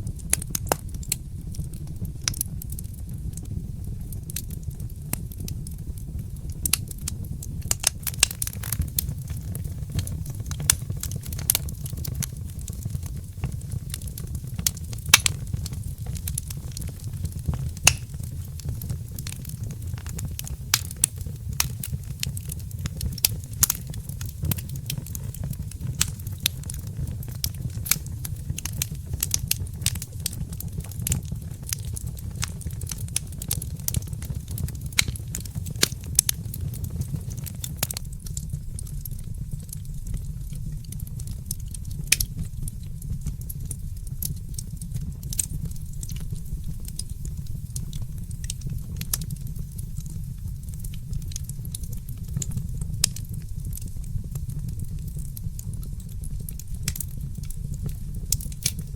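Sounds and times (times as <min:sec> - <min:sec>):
fireplace crackling: 0:00.0 - 0:58.9
pops and snaps: 0:17.8 - 0:18.1.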